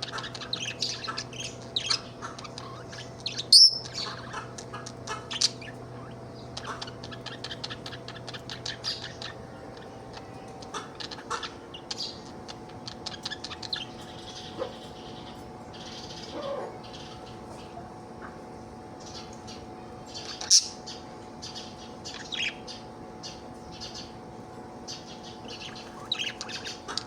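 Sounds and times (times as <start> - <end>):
budgerigar chattering: 0.0 - 17.8.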